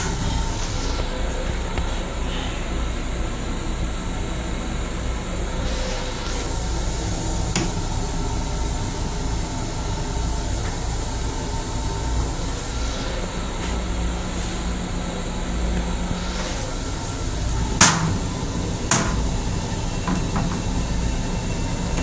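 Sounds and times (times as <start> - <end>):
railcar rumble and hiss: 0.0 - 22.0.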